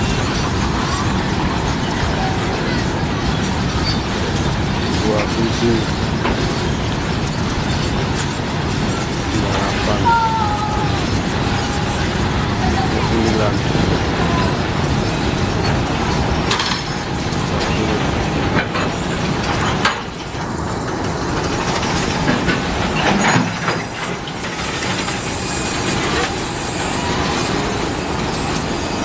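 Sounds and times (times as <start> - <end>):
rumble of train wheels: 0.0 - 29.0
clacks and knocks: 12.2 - 28.8.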